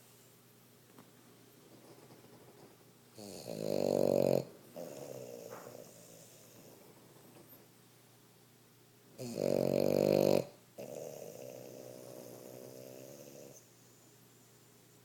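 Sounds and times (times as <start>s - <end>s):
dog snoring: 3.2s - 7.0s, 9.2s - 13.7s.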